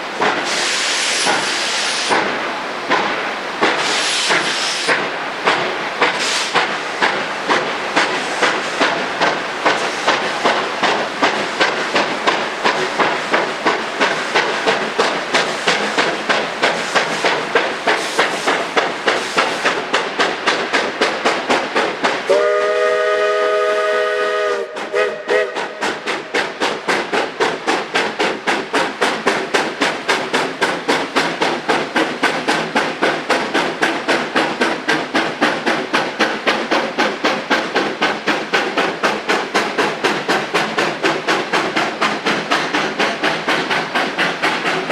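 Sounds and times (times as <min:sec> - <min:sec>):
steam locomotive chuffing: 0:00.0 - 0:44.9
steam locomotive whistle: 0:22.3 - 0:26.3.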